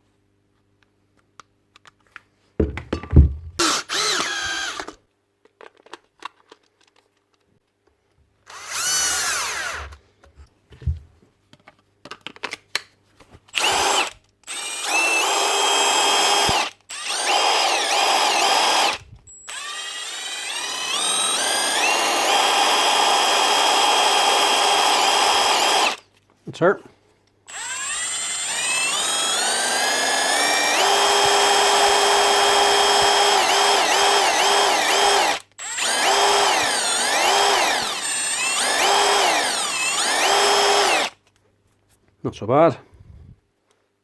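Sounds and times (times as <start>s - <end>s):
impact wrench motor whine: 3.2s - 5.0s, 8.5s - 10.0s, 13.6s - 26.0s, 27.5s - 41.2s.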